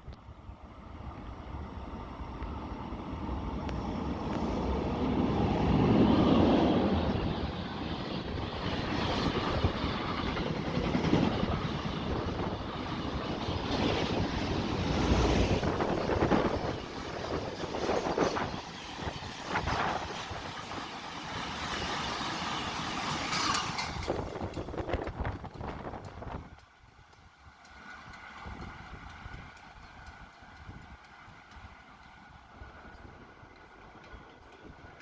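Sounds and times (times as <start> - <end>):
train passing: 0.0 - 35.0
wind buffeting microphone: 0.9 - 22.0, 23.1 - 27.1.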